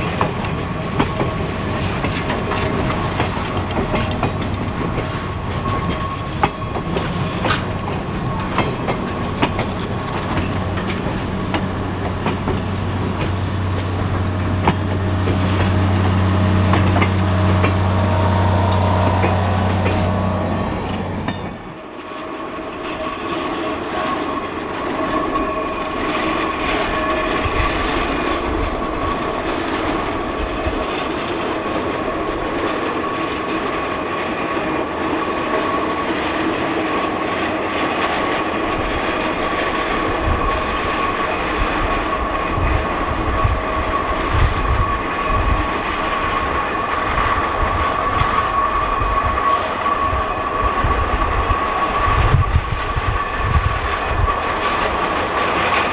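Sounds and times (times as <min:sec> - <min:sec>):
train rolling on track: 0:00.0 - 0:55.9
thumping and clanking: 0:00.2 - 0:21.8
high-pitched wheel squeal: 0:02.6 - 0:21.9.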